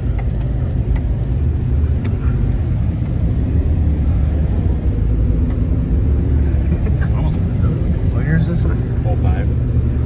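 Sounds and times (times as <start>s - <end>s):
truck engine low rumble: 0.0s - 10.0s.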